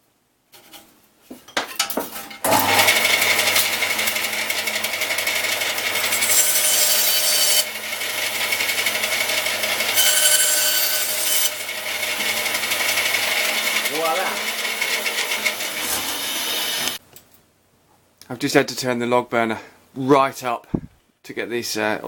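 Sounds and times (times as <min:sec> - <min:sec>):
power saw cutting wood: 0:02.4 - 0:17.0.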